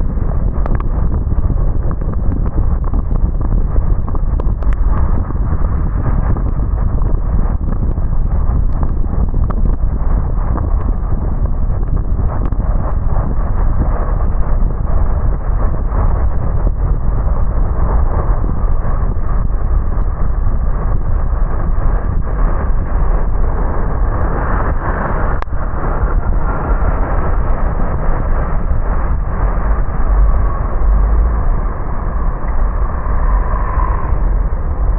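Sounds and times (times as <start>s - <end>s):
car tyres on wet road: 16.8s - 34.9s.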